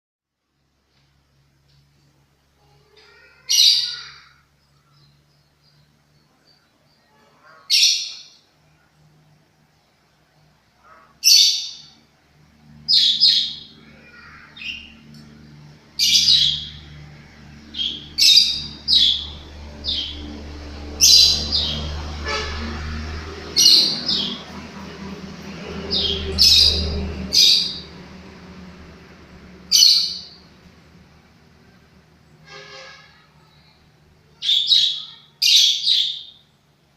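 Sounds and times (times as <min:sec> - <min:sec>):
lovebird high-pitched calls: 0:03.1 - 0:04.3, 0:07.0 - 0:08.4, 0:10.9 - 0:12.0, 0:12.9 - 0:15.0, 0:16.0 - 0:16.9, 0:17.7 - 0:20.2, 0:29.7 - 0:30.4, 0:34.3 - 0:36.5.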